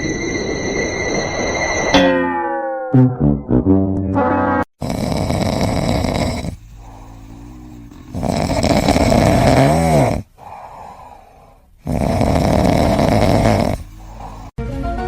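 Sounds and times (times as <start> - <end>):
whistling tone in snore: 0.0 - 2.0, 4.8 - 10.3, 11.8 - 14.6
loud snoring: 4.8 - 14.6.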